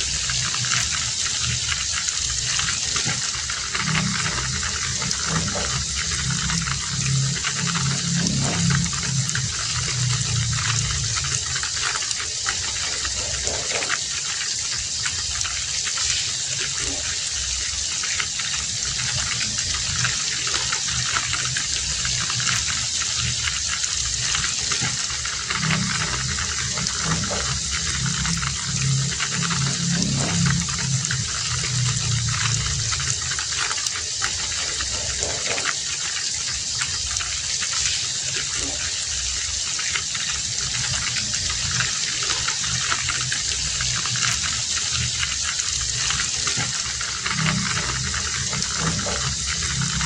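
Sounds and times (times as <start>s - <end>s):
low rumble: 0.0s - 13.8s, 18.6s - 35.5s, 40.6s - 50.0s
heavy rain falling: 0.0s - 50.0s.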